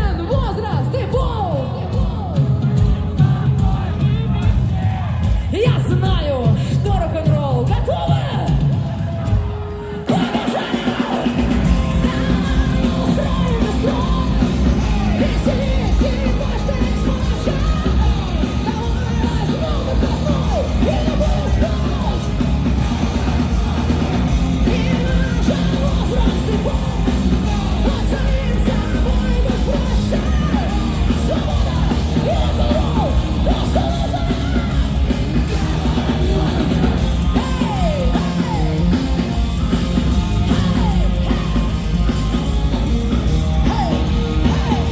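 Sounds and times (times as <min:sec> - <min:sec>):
heavy rock band playing: 0:00.0 - 0:44.9
person shouting and singing: 0:09.9 - 0:44.9.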